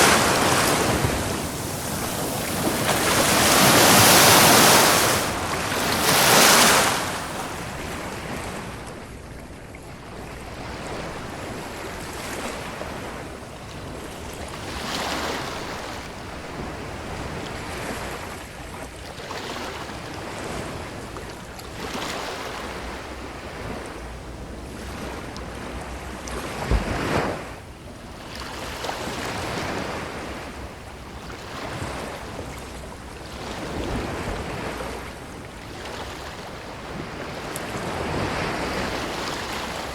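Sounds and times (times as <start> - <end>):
ocean waves washing up beach: 0.0 - 9.3, 10.2 - 39.9
sharp thump of surf: 26.6 - 27.5.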